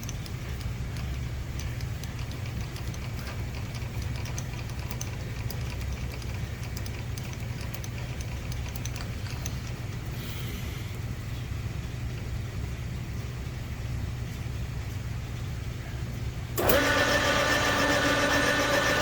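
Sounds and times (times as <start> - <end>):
metal lathe humming: 16.6 - 19.0.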